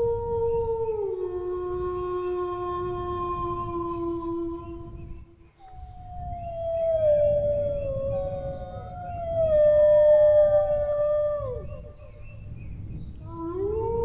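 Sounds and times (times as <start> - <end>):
dogs howling: 5.8 - 12.0.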